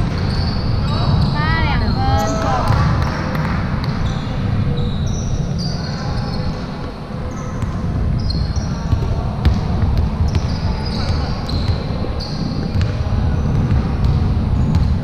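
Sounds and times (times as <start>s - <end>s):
low hall rumble: 0.0s - 15.0s
sneaker squeaks: 0.0s - 15.0s
basketball bouncing: 2.6s - 4.0s, 8.9s - 15.0s.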